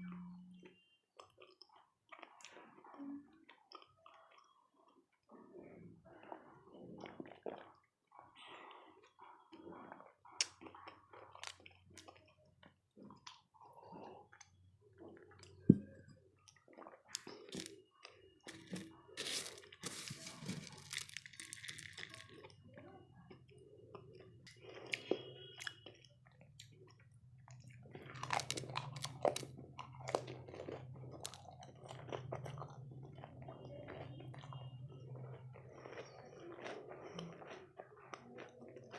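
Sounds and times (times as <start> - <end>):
chewing and crunching: 0.7 - 38.9.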